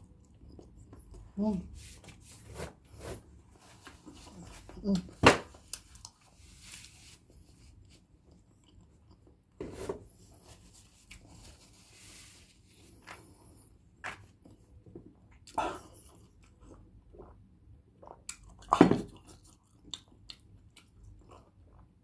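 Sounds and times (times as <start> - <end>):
quiet chewing: 7.8 - 9.6, 15.3 - 22.0.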